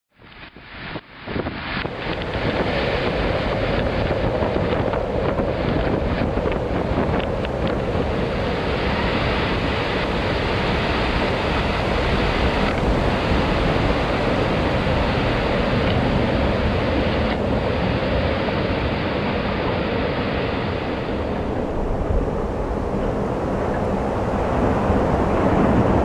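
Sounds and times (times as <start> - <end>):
rushing wind: 0.2 - 26.0.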